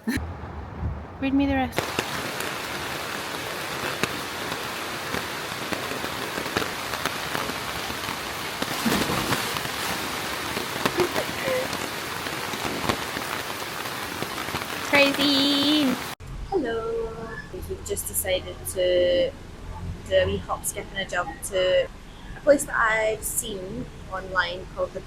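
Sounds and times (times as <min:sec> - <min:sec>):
heavy rain falling: 0:01.6 - 0:16.2.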